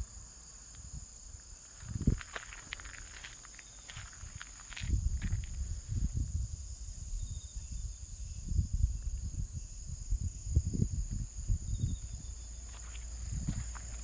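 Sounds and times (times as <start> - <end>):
insects trilling: 0.0 - 14.0
low thumps and rumbles: 1.8 - 3.2, 4.0 - 6.6, 8.6 - 14.0.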